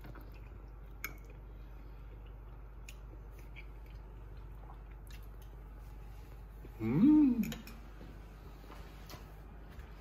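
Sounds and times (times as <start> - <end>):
person chewing food: 0.0 - 6.7
low steady hum: 0.0 - 10.0.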